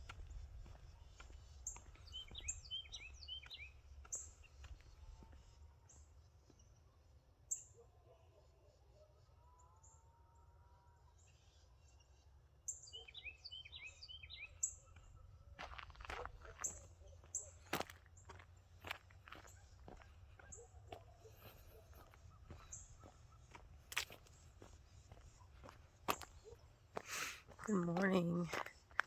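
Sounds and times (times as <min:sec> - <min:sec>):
small birds chirping: 0:00.0 - 0:07.8, 0:11.2 - 0:29.0
distant farm animals calling: 0:15.6 - 0:29.0.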